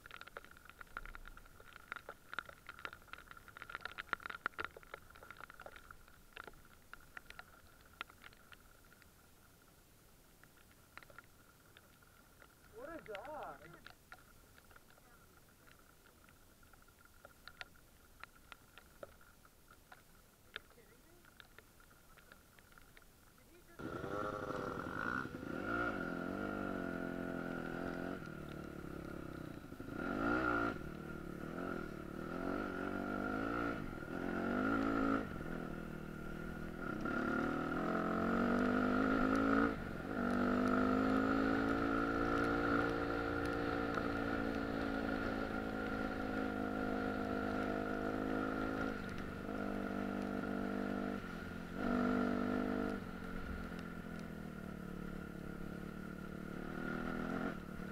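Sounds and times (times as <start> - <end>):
dirt bike engine revving: 23.8 - 28.2, 51.8 - 53.0, 55.8 - 57.9.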